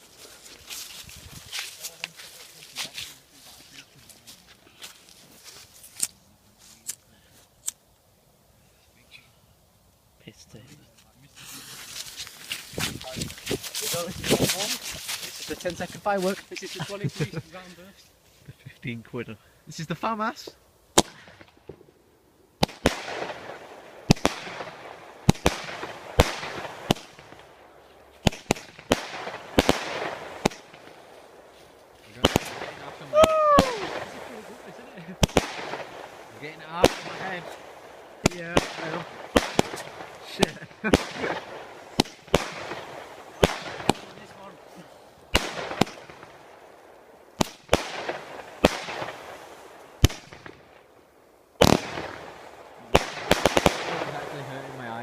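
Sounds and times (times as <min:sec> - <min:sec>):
firework bangs: 0:11.5 - 0:17.3, 0:20.9 - 0:22.0, 0:22.6 - 0:50.9, 0:51.6 - 0:55.0
firework fizz: 0:20.4 - 0:51.0, 0:51.6 - 0:55.0.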